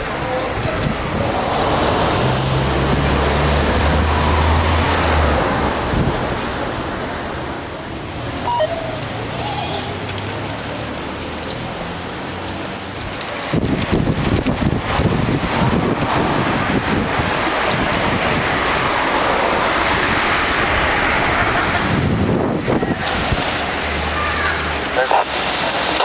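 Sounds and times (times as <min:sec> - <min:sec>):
street traffic: 0:00.0 - 0:26.0
vehicle engine humming: 0:00.0 - 0:26.0
wind: 0:00.0 - 0:26.0
high chirp: 0:08.5 - 0:08.9.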